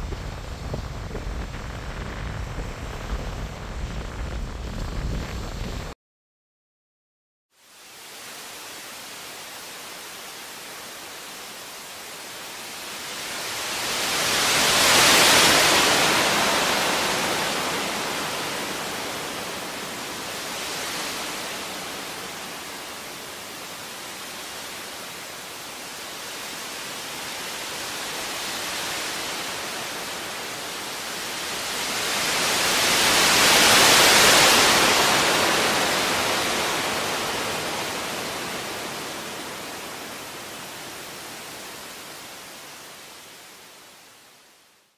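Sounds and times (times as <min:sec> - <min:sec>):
sea waves washing ashore: 0:00.0 - 0:05.9, 0:07.8 - 0:44.1.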